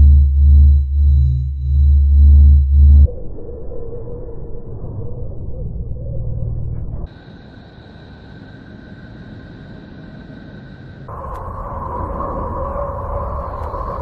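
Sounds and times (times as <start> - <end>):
low rumbling drone: 0.0 - 7.1, 10.4 - 14.0
hissing drone: 7.1 - 14.0.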